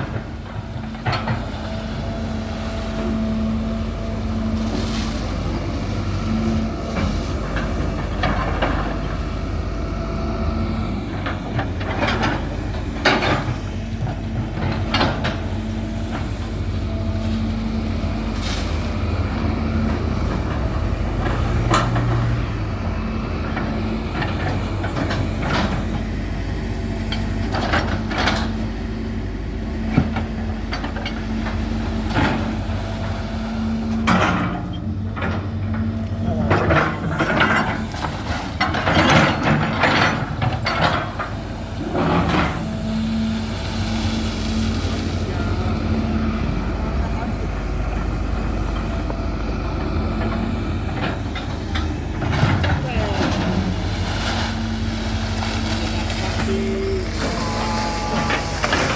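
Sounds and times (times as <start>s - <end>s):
excavator engine running: 0.0s - 58.9s
knocks and clanks: 11.1s - 16.5s, 19.7s - 22.6s, 33.9s - 42.8s, 48.7s - 53.8s, 56.4s - 58.9s.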